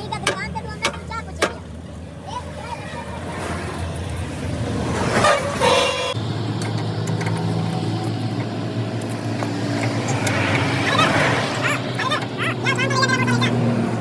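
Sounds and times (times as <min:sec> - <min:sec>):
vehicle engine humming: 0:00.0 - 0:14.0
vehicle horn toot: 0:05.2 - 0:06.2.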